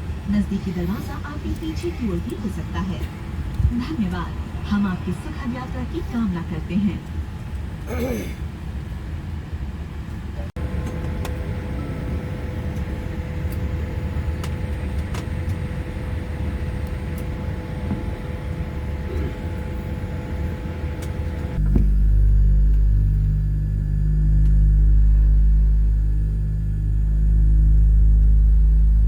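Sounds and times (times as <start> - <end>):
airliner cabin rumble: 0.0 - 29.0
loud deep hum: 10.6 - 29.0.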